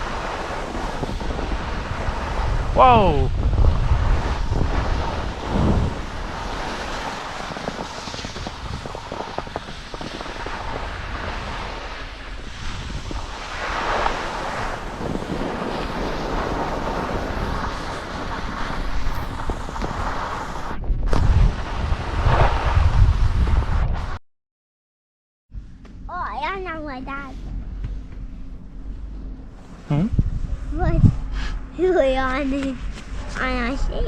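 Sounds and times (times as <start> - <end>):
skis scraping over snow: 0.0 - 2.7, 3.5 - 24.1
wind rushing over microphone: 0.0 - 24.2, 26.7 - 34.0.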